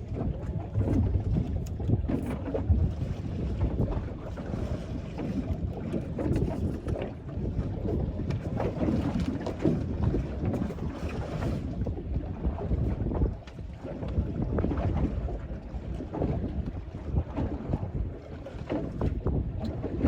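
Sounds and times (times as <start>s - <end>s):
water lapping against boat hull: 0.0s - 20.0s
wind buffeting microphone: 0.0s - 20.0s.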